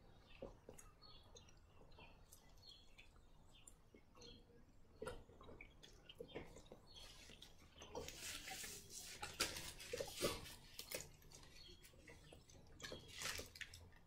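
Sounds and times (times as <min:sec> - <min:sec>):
chewing with soft clicks: 0:00.0 - 0:08.0.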